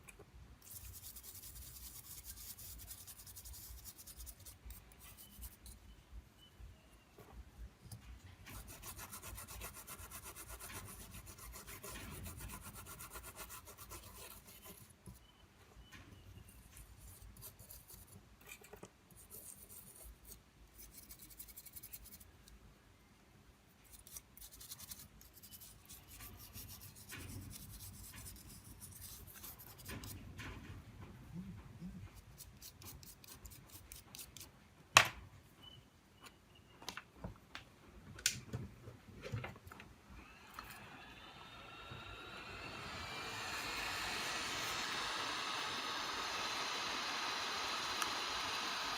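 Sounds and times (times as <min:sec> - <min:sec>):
rubbing strokes on small hard part: 0:00.6 - 0:06.0, 0:07.9 - 0:15.3, 0:16.4 - 0:22.5, 0:23.7 - 0:30.6, 0:31.3 - 0:34.6.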